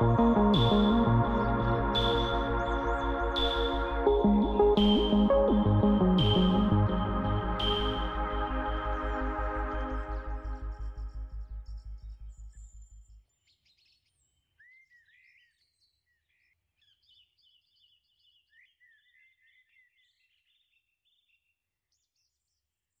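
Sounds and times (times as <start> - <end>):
electronic music with pulsing beat: 0.0 - 12.3
birdsong chirps: 0.0 - 22.7.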